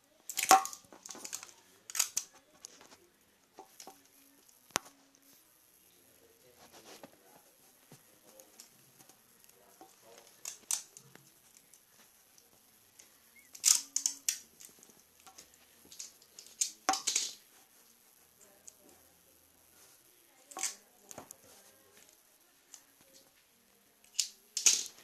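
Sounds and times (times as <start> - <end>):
tools and parts clicking: 0.3 - 2.4, 13.0 - 17.4, 24.0 - 25.0.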